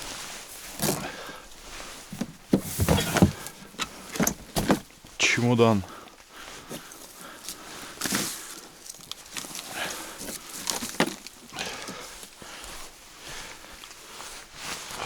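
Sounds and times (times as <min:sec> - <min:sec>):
rummaging through junk: 0:00.5 - 0:05.3, 0:06.6 - 0:12.3.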